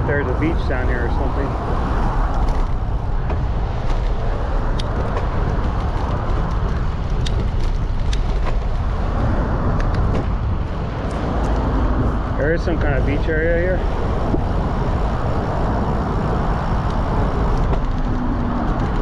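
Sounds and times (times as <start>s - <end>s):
road rumble: 0.0s - 19.0s
wind on microphone: 0.0s - 19.0s
bicycle ticks and knocks: 2.0s - 12.0s, 16.7s - 19.0s.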